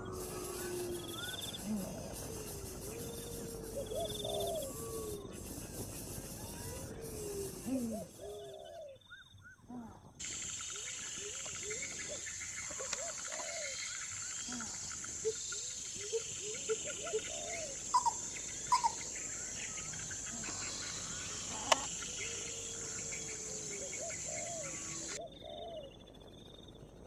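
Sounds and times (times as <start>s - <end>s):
high-pitched insect drone: 0.0s - 8.2s, 10.2s - 25.2s
bird chirps: 0.0s - 9.6s, 10.2s - 26.2s.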